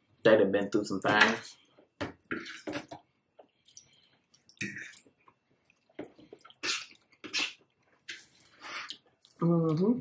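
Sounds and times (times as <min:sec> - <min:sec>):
person chewing food: 0:01.8 - 0:09.4.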